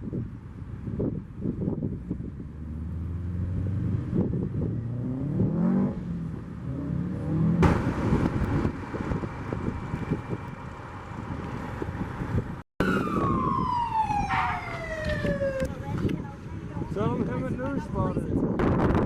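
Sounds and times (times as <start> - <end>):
car engine accelerating: 2.4 - 12.6.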